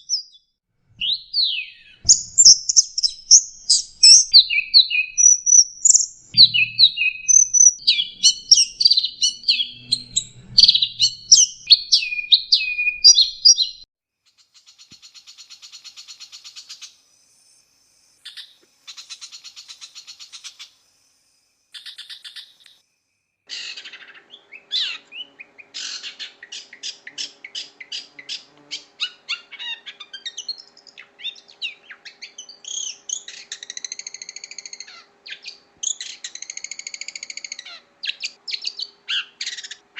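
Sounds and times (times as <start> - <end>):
shrike singing chirps and whistles: 0.0 - 13.9, 23.5 - 39.8
bird buzzing trill: 2.0 - 13.7, 24.7 - 29.1.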